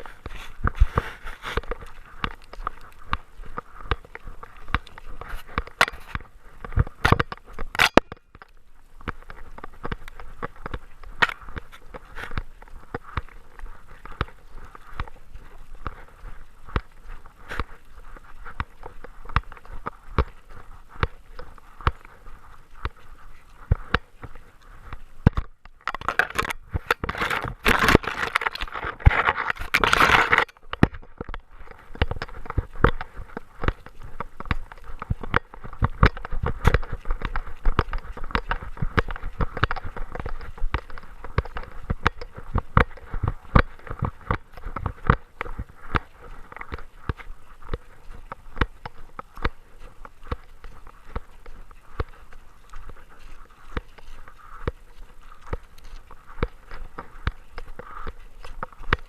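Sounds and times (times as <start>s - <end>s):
dense scraping and rustling: 0.0s - 3.1s.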